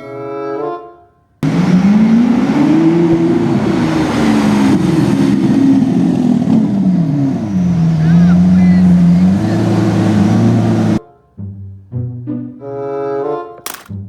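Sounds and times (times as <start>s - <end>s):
car engine revving: 1.4s - 11.0s.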